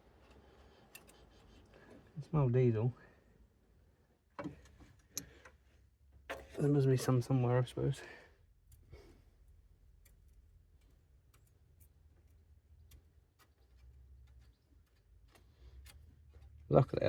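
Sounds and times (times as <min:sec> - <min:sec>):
faint irregular ticks: 0:08.6 - 0:17.0.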